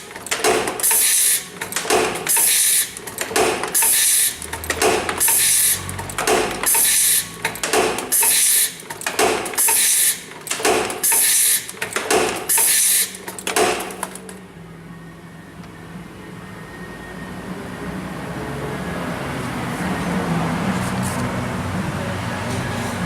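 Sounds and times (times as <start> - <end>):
forming machine loud bursts: 0.0 - 14.2
machine clicks: 0.0 - 14.4.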